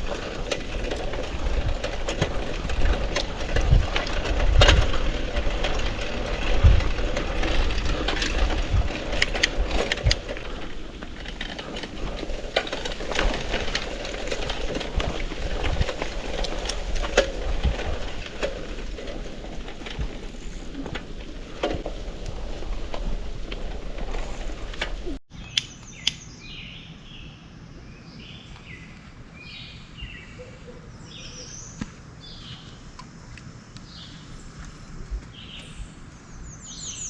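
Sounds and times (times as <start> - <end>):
low rumbling noise: 0.0 - 25.5
small birds chirping: 25.0 - 37.0.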